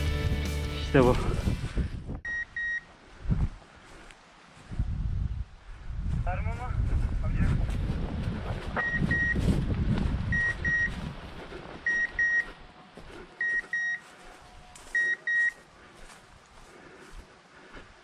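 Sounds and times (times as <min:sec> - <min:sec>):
wind rumbling on microphone: 0:01.0 - 0:02.4, 0:03.0 - 0:12.6
beeper collar double beeps: 0:02.3 - 0:02.9, 0:11.9 - 0:12.4, 0:15.0 - 0:15.6.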